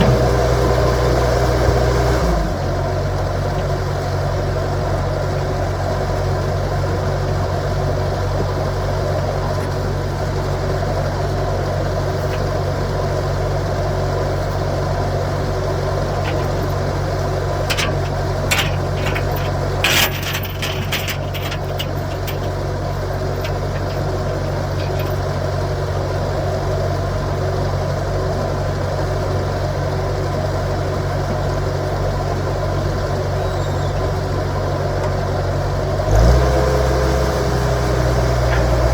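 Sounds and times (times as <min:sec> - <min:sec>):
sharp knocks and clanks: 0:00.0 - 0:01.9, 0:16.1 - 0:25.6, 0:38.3 - 0:38.9
skid steer engine running: 0:00.0 - 0:38.9.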